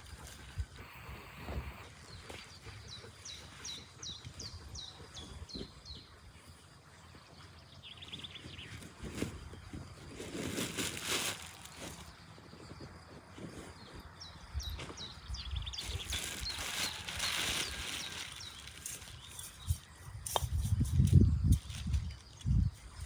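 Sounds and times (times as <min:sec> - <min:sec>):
rustling: 0:08.4 - 0:14.1, 0:15.7 - 0:19.9.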